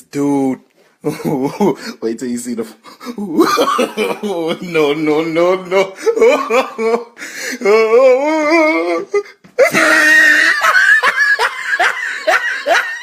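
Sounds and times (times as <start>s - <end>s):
people laughing: 3.2s - 7.1s, 9.7s - 13.0s.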